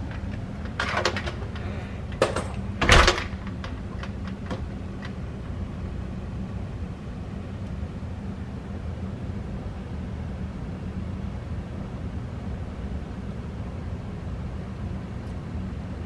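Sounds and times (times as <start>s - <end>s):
low mechanical hum: 0.0s - 16.0s
door shutting thud: 0.7s - 4.7s.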